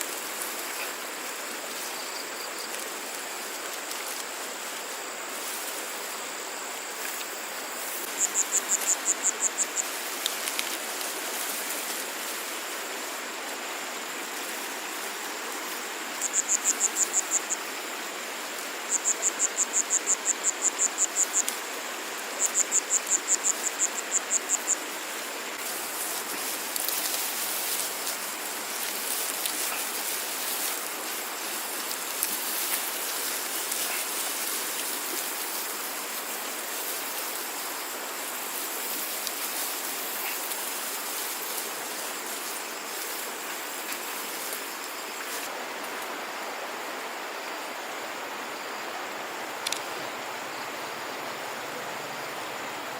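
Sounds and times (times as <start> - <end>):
insect chirping: 0.0 - 52.9
steady hiss: 0.0 - 52.9
scattered ticks: 8.0 - 11.9, 49.6 - 49.9.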